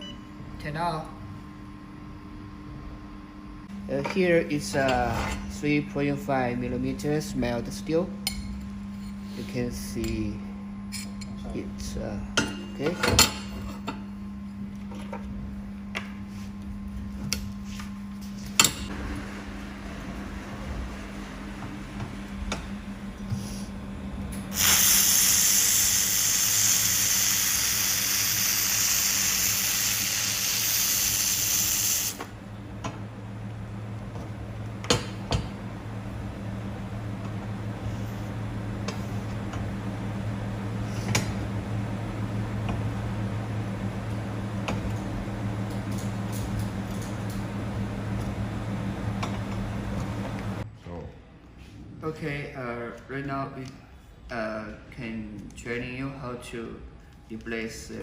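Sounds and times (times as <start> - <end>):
machine low hum: 0.0 - 58.0
laser welder hissing: 24.5 - 32.3.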